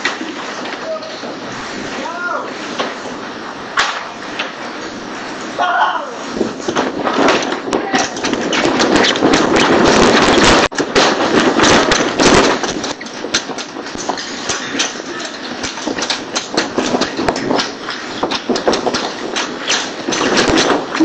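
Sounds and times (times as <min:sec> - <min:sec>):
storm wind rushing: 0:00.0 - 0:21.0
objects knocking and rattling: 0:06.4 - 0:21.0.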